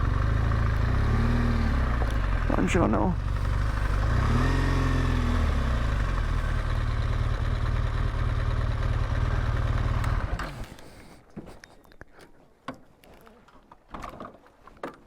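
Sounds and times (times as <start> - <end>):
motorcycle engine idling: 0.0 - 10.8.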